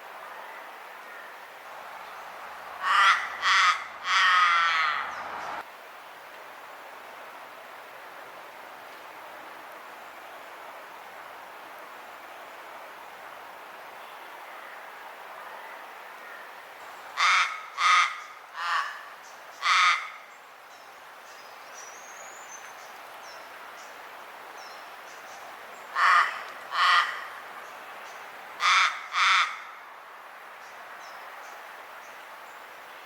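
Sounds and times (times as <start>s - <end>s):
raven croaking: 2.8s - 5.2s, 26.0s - 27.4s
outdoor hiss: 5.0s - 17.2s, 18.2s - 33.0s.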